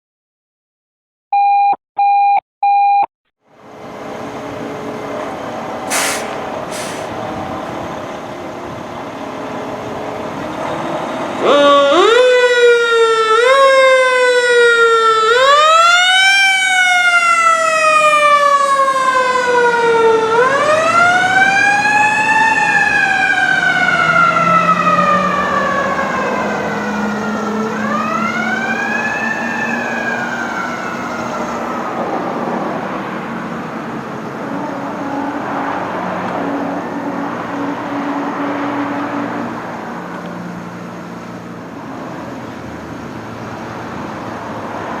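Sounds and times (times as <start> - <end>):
mechanical siren wailing: 11.4 - 32.2.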